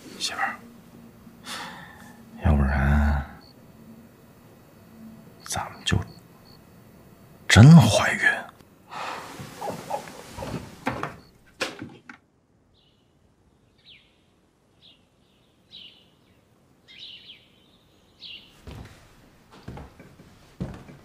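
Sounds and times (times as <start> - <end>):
birds chirping: 0.0 - 11.5, 12.7 - 18.9
footsteps: 9.1 - 11.3, 18.5 - 21.0.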